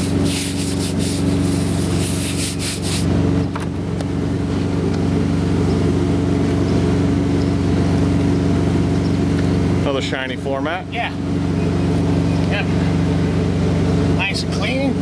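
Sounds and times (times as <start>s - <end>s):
quick scrubbing strokes: 0.0s - 3.1s
diesel engine idling: 0.0s - 15.0s.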